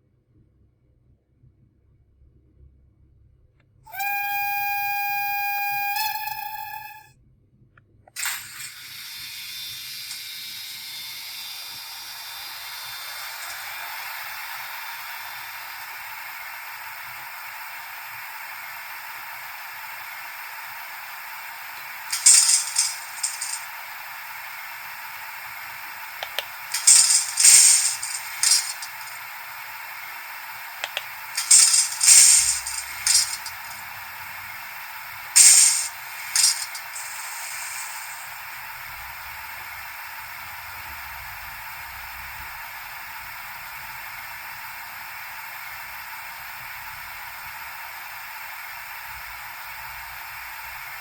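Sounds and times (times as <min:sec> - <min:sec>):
short loud hissing blasts: 0:08.2 - 0:38.9
steady thin hiss: 0:08.2 - 0:39.1.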